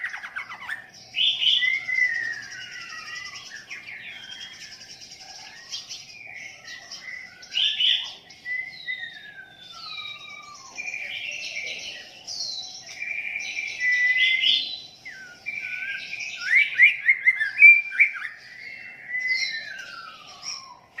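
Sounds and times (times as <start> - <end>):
songbird singing whistled song: 0.0 - 21.0.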